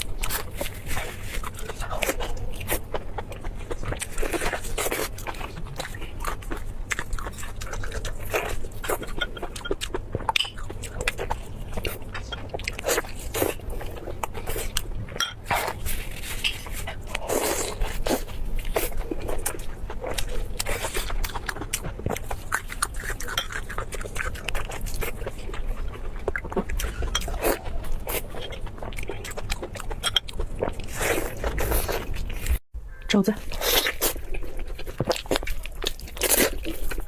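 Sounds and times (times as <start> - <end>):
person chewing crunchy food: 0.0 - 32.6, 33.4 - 37.0.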